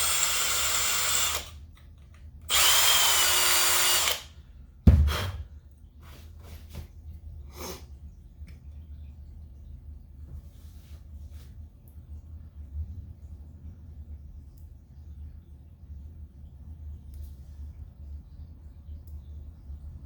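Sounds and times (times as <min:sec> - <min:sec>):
power drill boring metal: 0:00.0 - 0:01.5, 0:02.5 - 0:04.3
loud thump: 0:04.9 - 0:05.4.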